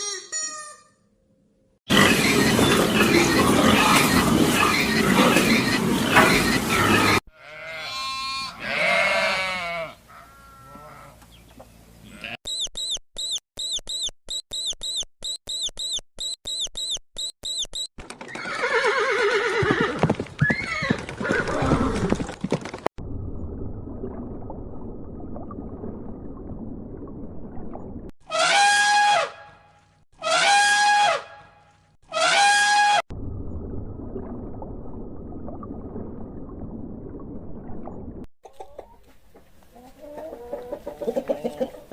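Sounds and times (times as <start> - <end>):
high chirps: 12.5 - 17.9
low steady rumble: 23.0 - 27.6, 33.1 - 38.2.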